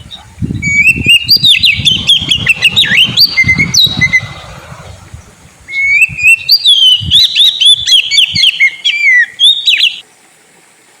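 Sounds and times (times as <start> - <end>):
bird singing whistles and chirps: 0.0 - 4.4, 5.7 - 10.0.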